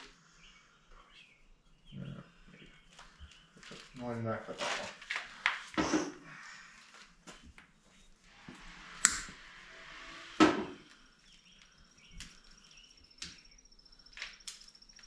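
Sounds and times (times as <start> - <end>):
faint high pulsing tone: 8.0 - 11.1.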